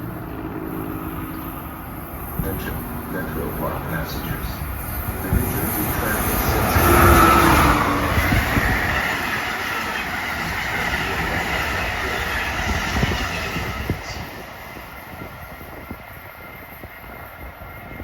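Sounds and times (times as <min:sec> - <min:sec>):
passenger train passing: 0:00.0 - 0:18.0.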